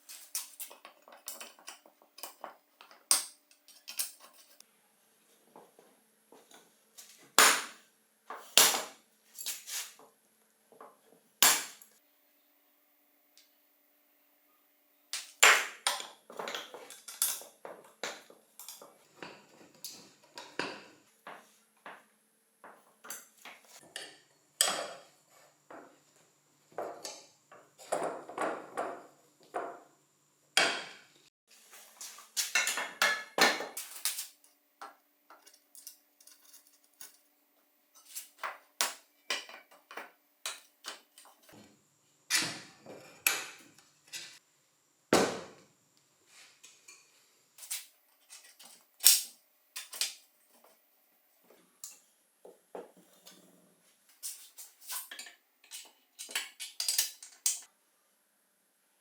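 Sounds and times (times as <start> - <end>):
metal bike parts clinking: 54.1 - 57.7.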